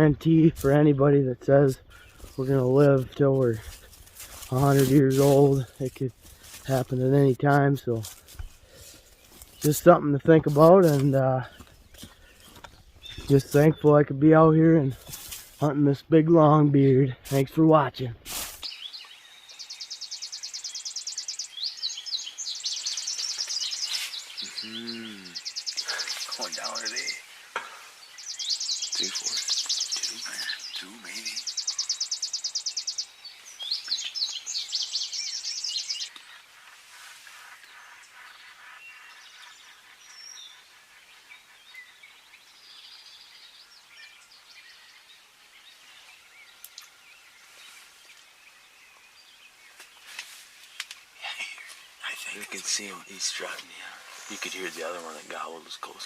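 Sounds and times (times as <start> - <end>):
light outdoor hiss: 0.0 - 56.0
songbirds singing: 0.0 - 56.0.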